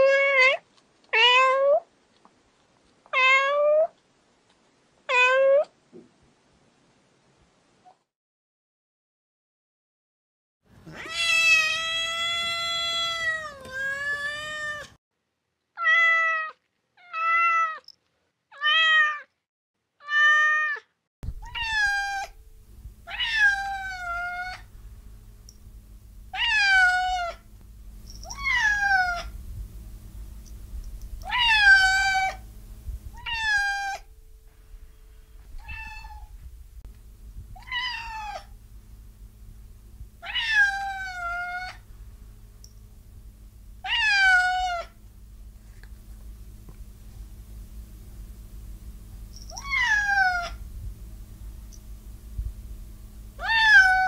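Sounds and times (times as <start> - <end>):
cat meowing: 10.8 - 15.0, 15.8 - 17.8, 20.0 - 22.4, 23.0 - 24.7, 26.3 - 27.4, 28.2 - 29.3, 31.2 - 32.4, 33.2 - 34.1, 35.5 - 36.4, 37.6 - 38.5, 40.2 - 41.8, 43.8 - 45.0, 49.5 - 50.6, 53.4 - 54.0
steady low hum: 21.2 - 54.0.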